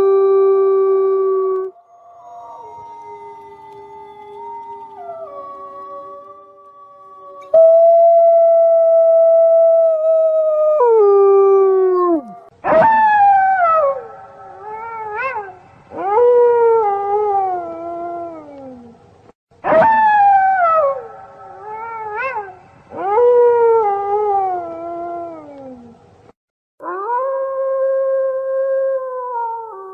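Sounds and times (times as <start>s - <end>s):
wolves howling: 0.0s - 18.9s
rising yelps: 19.6s - 22.6s.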